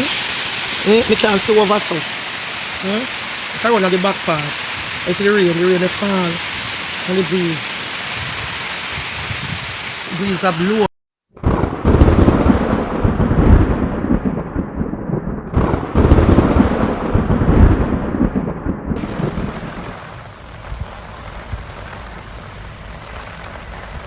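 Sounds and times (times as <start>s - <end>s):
rain: 0.0s - 10.9s, 15.5s - 18.3s, 19.0s - 24.0s
steady hiss: 0.0s - 10.9s, 19.0s - 24.0s
wind gusting against microphone: 0.0s - 10.9s, 11.7s - 22.0s.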